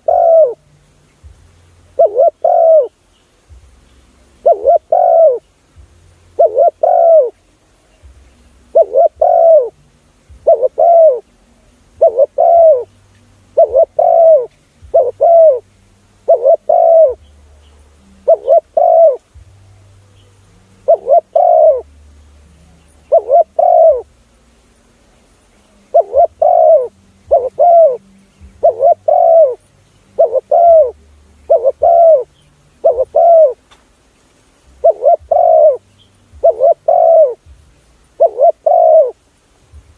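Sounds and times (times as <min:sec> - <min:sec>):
dove cooing: 0:00.0 - 0:00.7, 0:01.9 - 0:03.5, 0:04.4 - 0:05.6, 0:06.2 - 0:21.9, 0:22.6 - 0:24.2, 0:25.6 - 0:33.7, 0:34.7 - 0:39.3.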